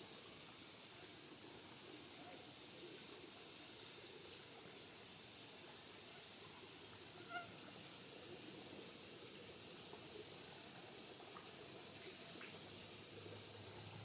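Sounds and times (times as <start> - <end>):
insects droning: 0.1 - 14.0
bird call: 7.2 - 7.6.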